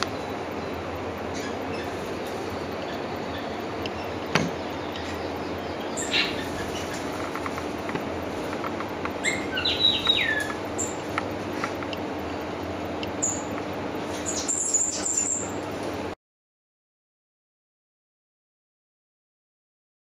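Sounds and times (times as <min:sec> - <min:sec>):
small bird chirping: 0:00.0 - 0:12.5, 0:13.1 - 0:15.6
steady hum: 0:00.0 - 0:16.2.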